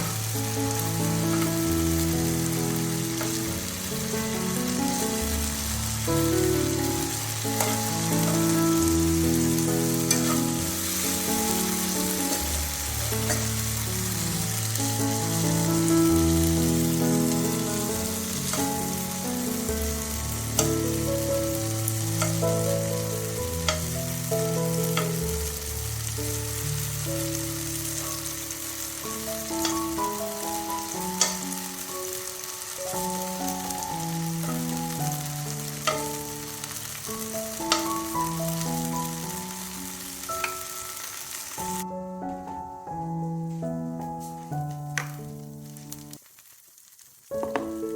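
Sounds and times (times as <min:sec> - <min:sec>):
background music low notes: 0:00.0 - 0:46.2
food sizzling in a pan: 0:00.0 - 0:47.9
utensil clicking against pan: 0:22.2 - 0:22.6, 0:31.2 - 0:31.4.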